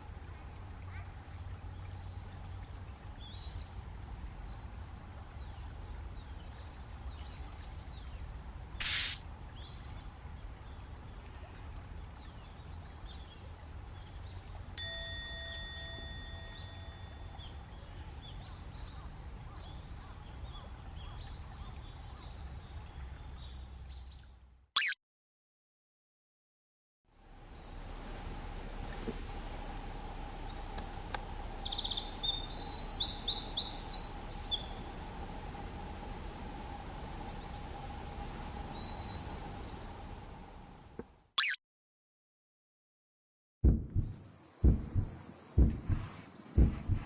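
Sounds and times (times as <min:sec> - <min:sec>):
bell-like ding: 0:14.8 - 0:17.3
faint bird chirps: 0:24.8 - 0:25.0, 0:29.7 - 0:35.8.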